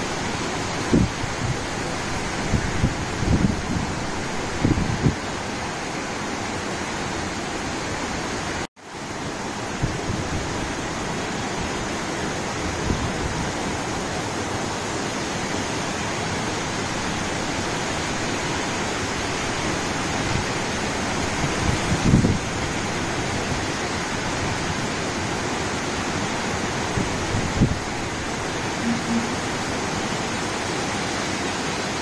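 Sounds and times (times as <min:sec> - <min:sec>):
wind gusts on microphone: 0:00.0 - 0:05.7, 0:19.4 - 0:25.2, 0:26.4 - 0:28.2
heavy rain pouring: 0:00.0 - 0:32.0.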